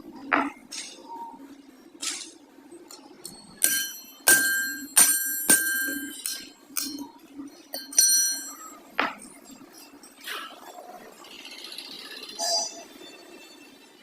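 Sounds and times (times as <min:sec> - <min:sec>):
steady low hum: 0:00.0 - 0:11.2
hammer striking steel: 0:03.2 - 0:08.8.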